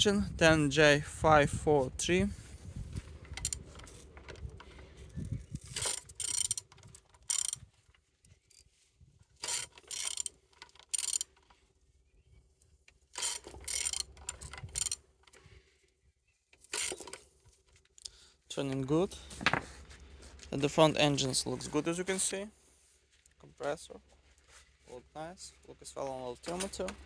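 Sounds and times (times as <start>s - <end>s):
ratchet wrench clicking: 3.2s - 4.6s, 5.6s - 7.7s, 9.4s - 11.5s, 13.2s - 15.0s, 16.6s - 17.2s.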